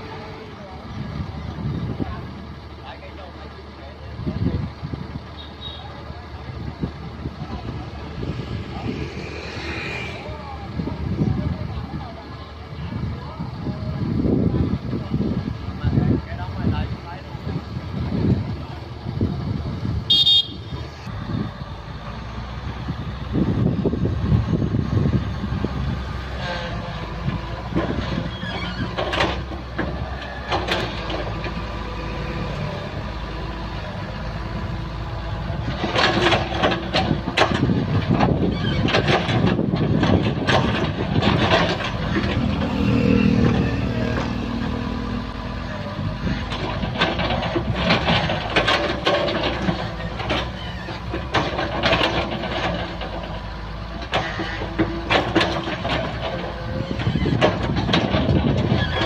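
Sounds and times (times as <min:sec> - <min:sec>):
diesel engine running: 0:00.0 - 0:59.0
metal clanks and knocks: 0:35.6 - 0:43.6, 0:46.3 - 0:53.4, 0:54.0 - 0:59.0.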